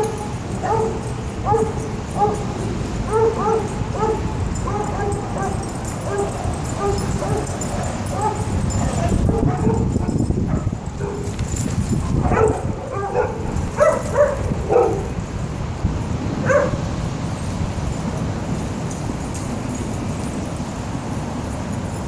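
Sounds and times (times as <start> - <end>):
dogs whining and yipping: 0.0 - 15.6, 16.4 - 17.5
dogs barking and yelping: 0.0 - 18.2.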